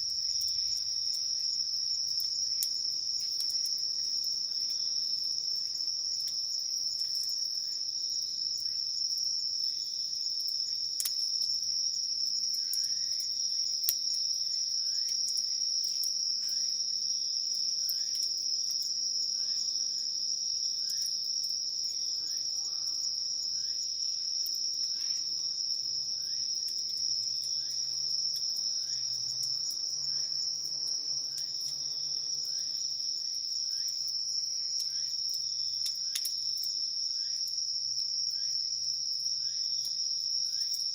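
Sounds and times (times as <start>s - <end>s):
insects trilling: 0.0s - 40.9s
faint sharp clicks: 35.8s - 36.4s.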